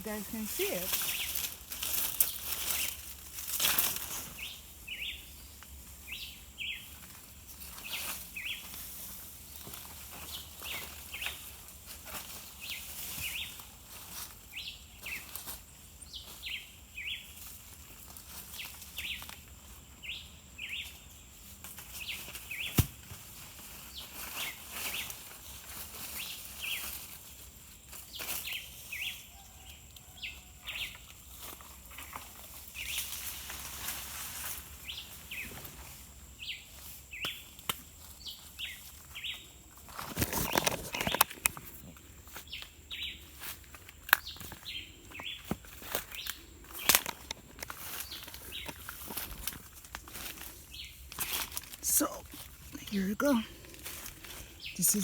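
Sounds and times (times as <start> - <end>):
rustling of leaves and brush: 0.0 - 55.0
birds chirping: 51.8 - 55.0.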